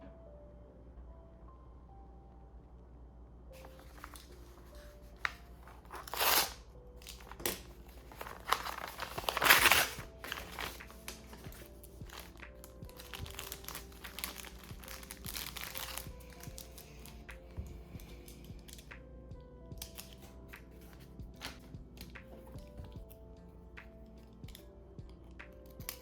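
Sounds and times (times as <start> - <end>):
soft background music: 0.0 - 26.0
packaging crinkling and tearing: 3.6 - 17.3, 19.8 - 23.1.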